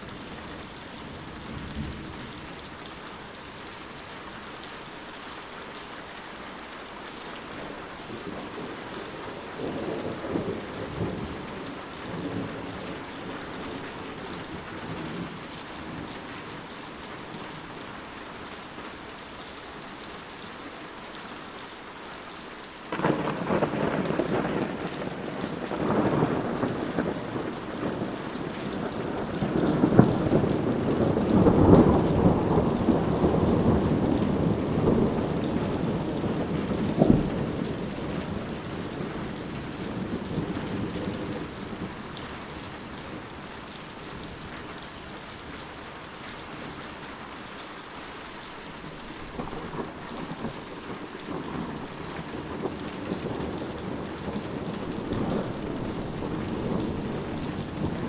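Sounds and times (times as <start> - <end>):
steady rain: 0.0 - 58.0
rolling thunder: 22.9 - 43.3, 49.2 - 58.0.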